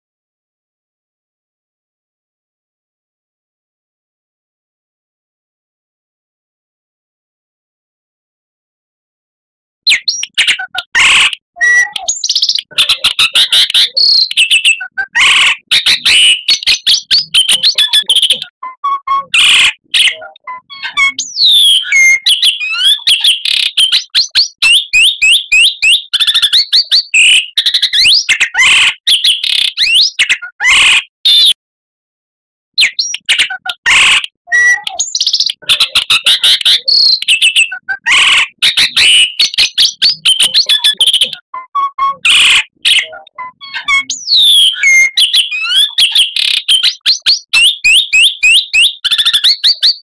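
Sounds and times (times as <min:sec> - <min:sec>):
bird singing loudly: 0:09.9 - 0:31.6, 0:32.8 - 0:50.0.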